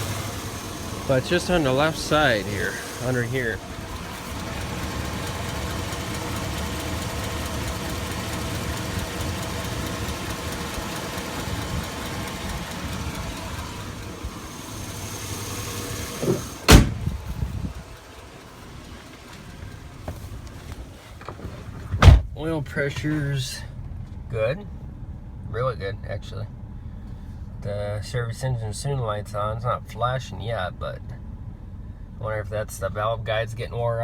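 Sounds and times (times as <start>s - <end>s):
truck engine idling with tick: 0.0s - 34.0s
loud slam: 16.2s - 17.2s.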